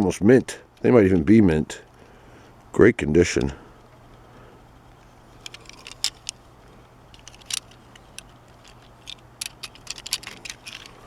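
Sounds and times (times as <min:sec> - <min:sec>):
faint background hum: 0:00.0 - 0:11.0
light clicks and taps of toys: 0:04.9 - 0:06.4, 0:07.1 - 0:11.0.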